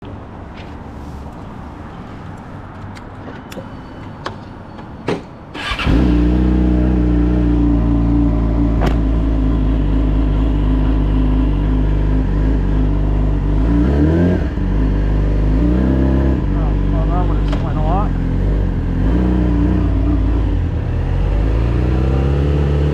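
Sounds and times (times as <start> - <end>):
motorcycle engine starting and idling: 5.5 - 13.4.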